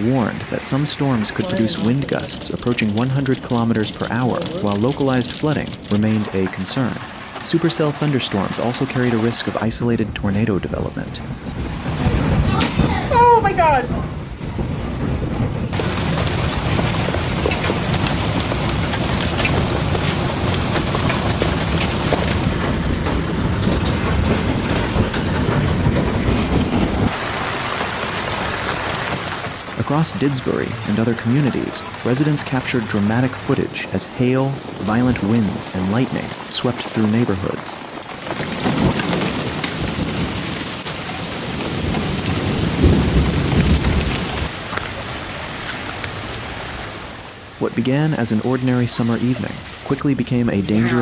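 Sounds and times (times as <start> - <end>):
thunder rumbling: 0.0 - 47.6, 49.4 - 51.0
hail and rain pelting: 0.0 - 51.0
wind rumble on microphone: 9.5 - 27.1, 37.8 - 44.7.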